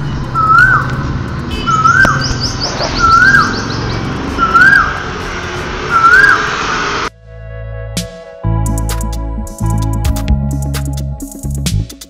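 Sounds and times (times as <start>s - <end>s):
bird whistling rising and falling: 0.4s - 0.9s, 1.7s - 5.1s, 5.8s - 6.8s
fast high bird trill: 1.5s - 5.1s.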